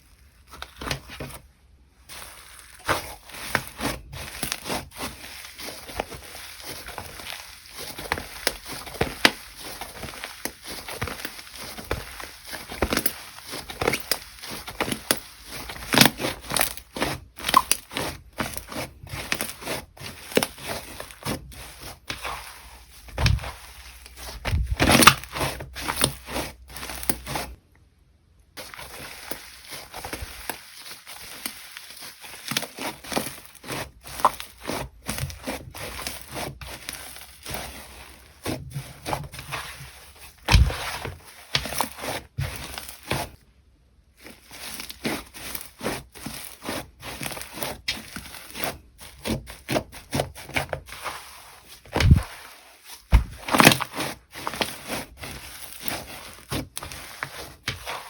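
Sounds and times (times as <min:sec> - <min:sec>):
slime squishes: 0:00.0 - 0:27.7, 0:28.6 - 0:58.0
slime crackling and popping: 0:02.1 - 0:27.6, 0:28.6 - 0:43.4, 0:53.0 - 0:58.0.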